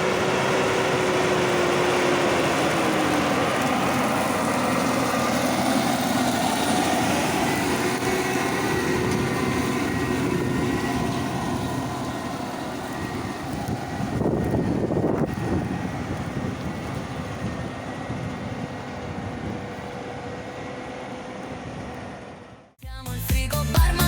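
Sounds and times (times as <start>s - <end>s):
diesel engine running under load: 0.0s - 24.0s.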